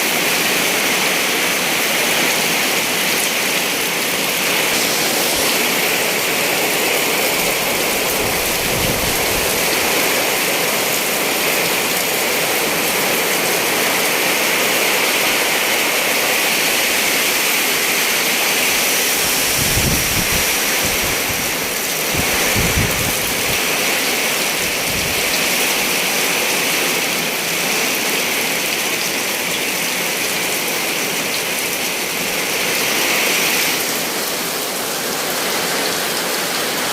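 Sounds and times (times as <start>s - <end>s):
heavy rain: 0.0s - 36.9s
strong wind gusting: 2.3s - 11.8s, 16.9s - 25.4s.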